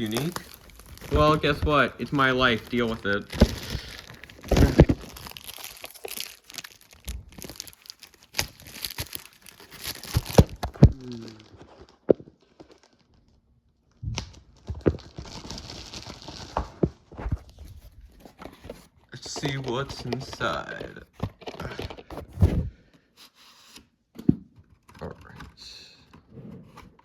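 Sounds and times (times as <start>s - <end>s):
plastic wrap tearing and crinkling: 0.0s - 18.4s.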